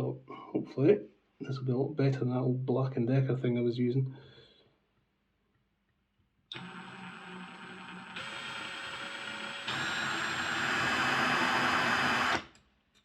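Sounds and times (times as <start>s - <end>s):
mini drill motor whining: 6.5s - 12.6s.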